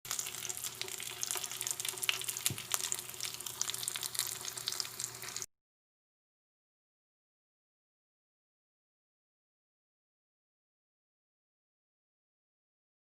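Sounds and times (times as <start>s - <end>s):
chicken sizzling in a pan: 0.1s - 5.5s.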